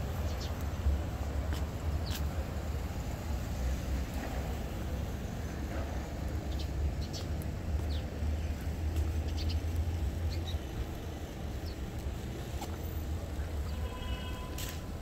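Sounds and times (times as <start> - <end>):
low city rumble: 0.0 - 15.0
small birds chirping: 0.2 - 0.8, 1.9 - 2.4, 6.3 - 14.2.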